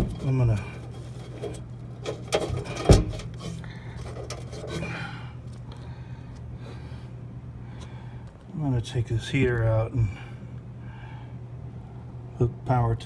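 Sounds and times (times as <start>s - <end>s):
metal parts clinking: 0.0s - 5.0s
steady low hum: 0.0s - 13.0s.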